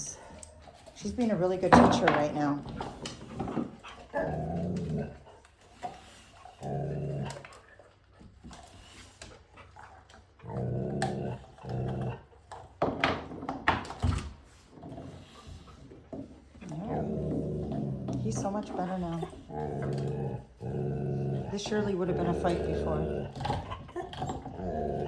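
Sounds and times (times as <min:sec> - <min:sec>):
dog growling: 0:00.0 - 0:13.0, 0:14.6 - 0:25.0.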